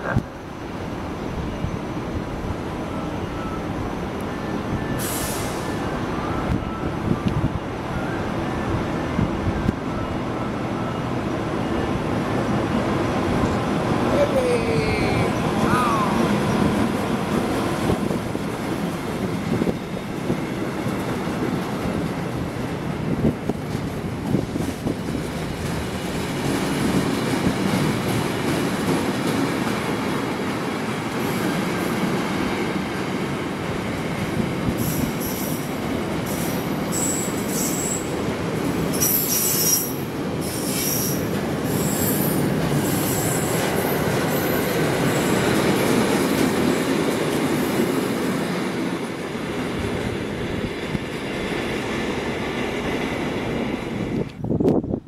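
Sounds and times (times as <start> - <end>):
train wheels rumbling on rails: 0.0 - 55.0
high-pitched wheel squeals: 36.4 - 38.1, 39.0 - 43.5.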